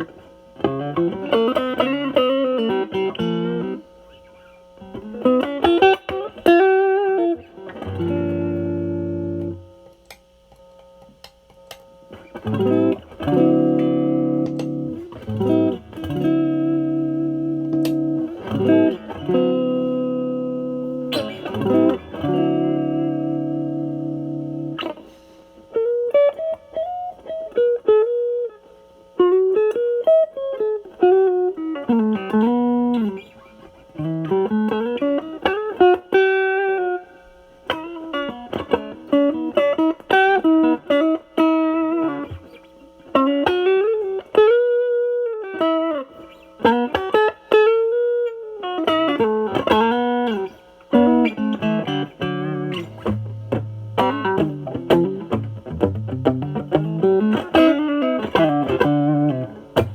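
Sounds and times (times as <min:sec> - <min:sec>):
overdriven electric guitar: 0:00.0 - 0:59.9.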